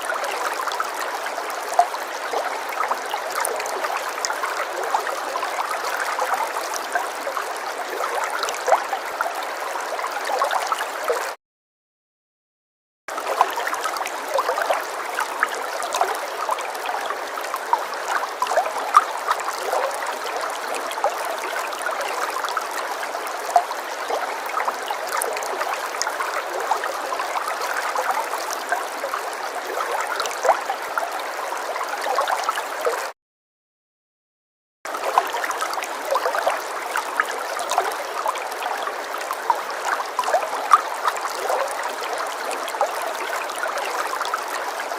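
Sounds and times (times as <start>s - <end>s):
water splashing and trickling: 0.0s - 11.4s, 13.1s - 33.2s, 34.9s - 44.9s.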